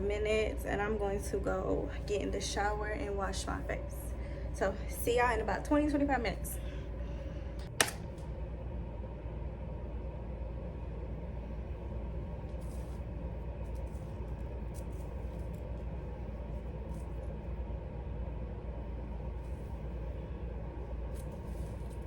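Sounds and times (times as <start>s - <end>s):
low room hum and rumble: 0.0s - 22.0s
sharp click: 7.6s - 8.2s.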